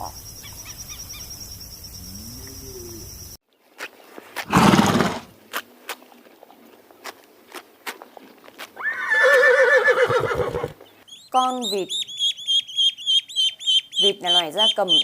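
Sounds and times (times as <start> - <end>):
background noise: 0.0 - 15.0
horse snorting: 4.4 - 5.3
horse calling: 8.8 - 10.8.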